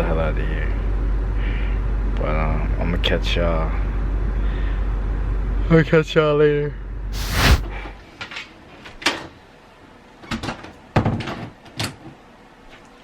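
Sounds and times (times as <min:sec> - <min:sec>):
rush of noise: 0:07.2 - 0:07.6.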